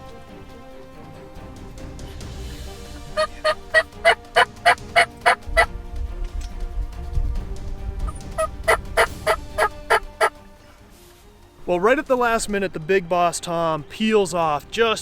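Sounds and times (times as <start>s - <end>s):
turkey gobbling: 3.1s - 5.7s, 8.1s - 10.3s.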